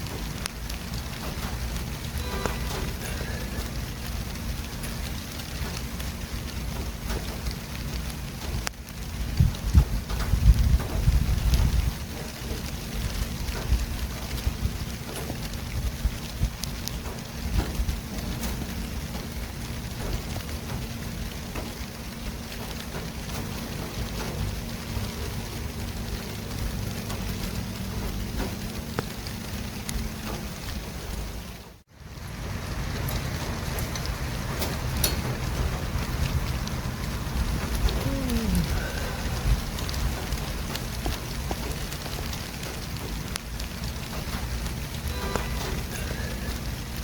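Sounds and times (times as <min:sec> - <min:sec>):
street traffic noise: 0:00.0 - 0:47.0
passing vehicles rumble: 0:23.5 - 0:47.0.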